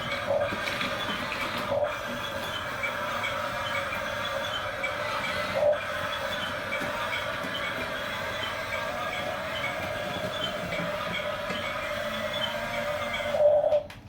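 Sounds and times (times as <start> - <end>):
small electric motors whirring: 0.0 - 13.8.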